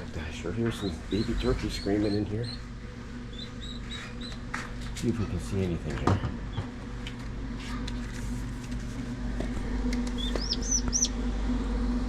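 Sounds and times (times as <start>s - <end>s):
steady low hum: 0.0s - 12.0s
poults peeping: 0.5s - 4.5s, 10.1s - 11.2s.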